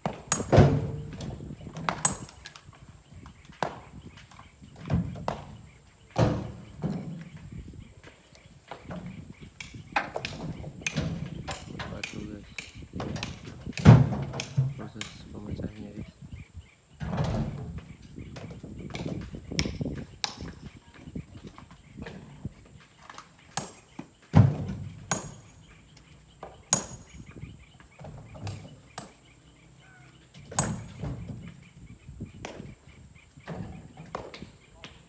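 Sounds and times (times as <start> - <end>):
knocks and thumps: 0.0 - 16.0, 17.0 - 22.7, 23.5 - 25.5, 26.3 - 29.2, 30.3 - 35.0.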